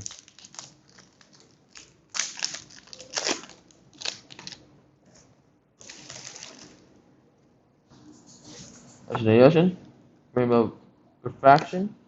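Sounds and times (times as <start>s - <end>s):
foil wrapper crinkling and tearing: 0.0s - 4.6s, 5.8s - 6.8s.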